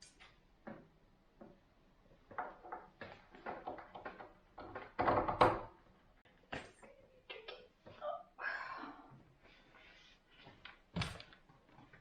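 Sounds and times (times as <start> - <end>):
cupboard door knocks and clatters: 3.4 - 5.8.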